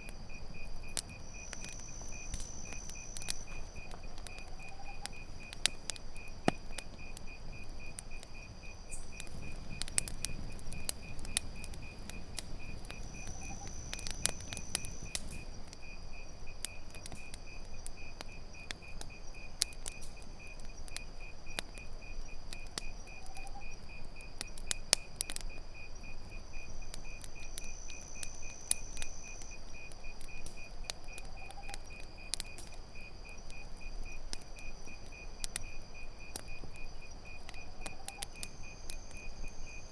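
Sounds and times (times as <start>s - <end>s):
campfire crackling: 0.0s - 39.9s
crickets chirping: 0.0s - 39.9s.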